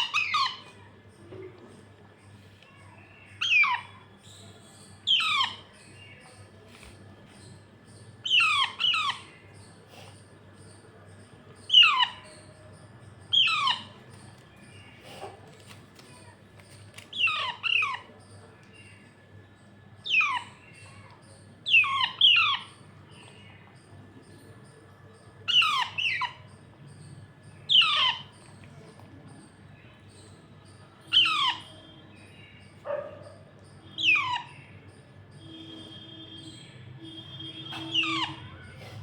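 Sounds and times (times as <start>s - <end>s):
parakeet chick harsh calls: 0.0s - 0.6s, 5.1s - 5.7s, 8.3s - 9.4s, 13.3s - 13.9s, 21.7s - 22.8s, 25.5s - 26.4s, 27.7s - 28.4s, 31.1s - 31.8s, 34.0s - 34.6s, 35.5s - 38.8s.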